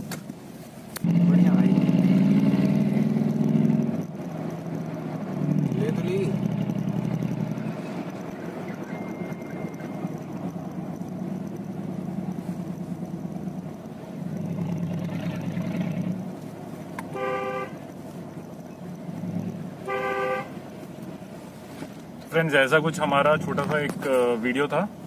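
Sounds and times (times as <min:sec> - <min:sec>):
car engine running: 0:00.0 - 0:25.0
road noise: 0:00.0 - 0:25.0
car horn honking: 0:17.0 - 0:17.9, 0:19.8 - 0:20.8.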